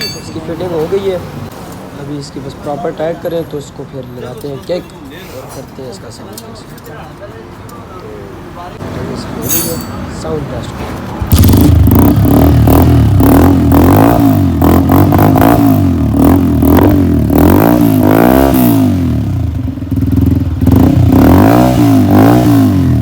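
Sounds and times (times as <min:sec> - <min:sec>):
motorcycle engine revving: 0:11.2 - 0:23.0.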